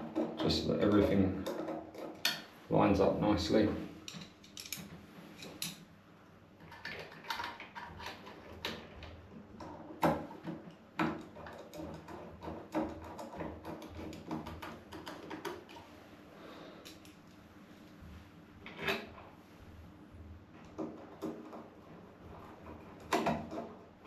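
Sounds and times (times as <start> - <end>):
small metallic clicks and scrapes: 4.1 - 5.8.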